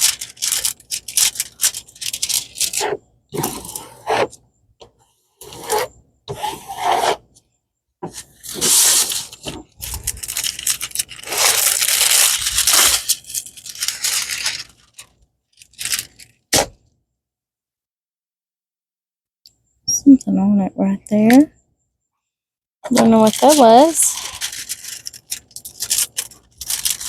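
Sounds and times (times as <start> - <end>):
plastic packaging crinkling and tearing: 0.0 - 3.0, 8.2 - 16.4, 22.9 - 27.0.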